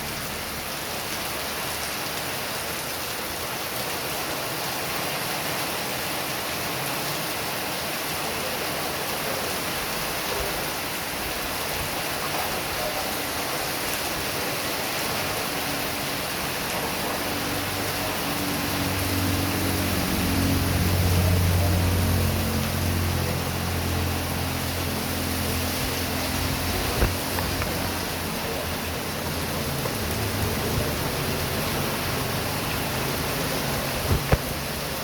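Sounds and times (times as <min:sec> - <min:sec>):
heavy rain: 0:00.0 - 0:35.0
vehicle engine hum: 0:17.0 - 0:34.9.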